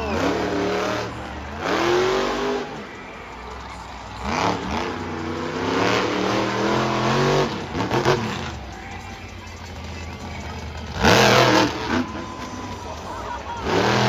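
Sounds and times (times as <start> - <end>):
monster truck engine revving: 0.0 - 14.0.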